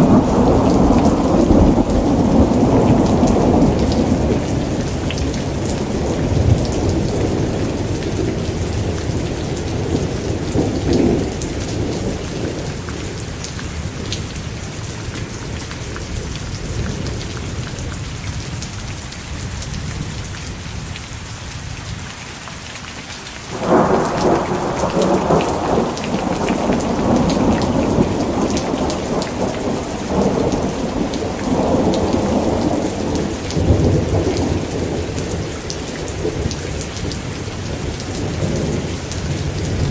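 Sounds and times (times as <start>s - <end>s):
loud thunderclap: 0.0s - 9.0s, 23.5s - 35.5s
rolling thunder: 0.0s - 13.3s, 23.5s - 39.9s
steady rain: 0.0s - 39.9s.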